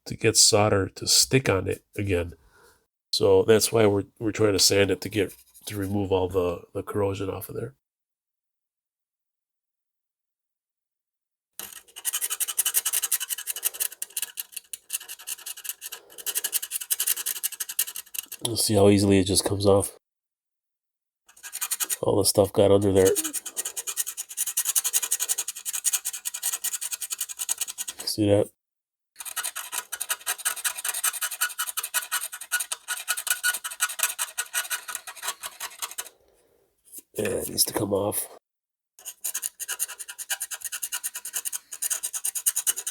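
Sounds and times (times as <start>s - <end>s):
sandpaper scrubbing circuit board: 11.6s - 18.4s, 21.3s - 22.0s, 22.7s - 27.9s, 29.2s - 36.1s, 39.0s - 42.9s.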